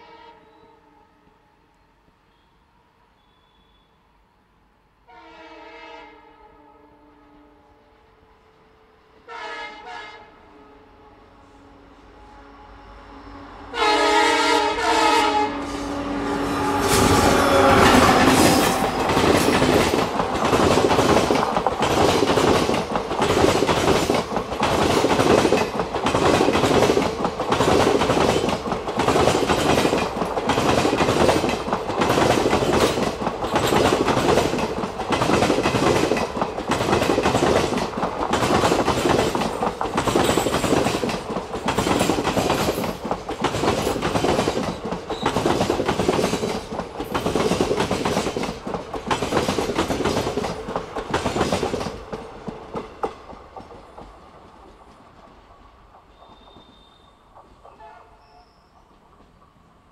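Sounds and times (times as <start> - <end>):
train horn chord: 0.0 - 2.6, 5.0 - 19.9, 57.7 - 58.5
train wheels clattering over rail joints: 16.7 - 56.7.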